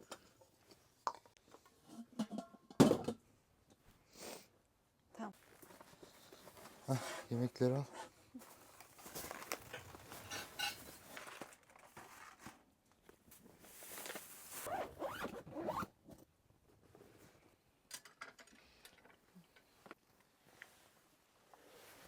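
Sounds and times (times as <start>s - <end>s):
rustling: 5.4s - 7.5s, 8.4s - 15.8s
zipper being pulled: 14.6s - 15.9s.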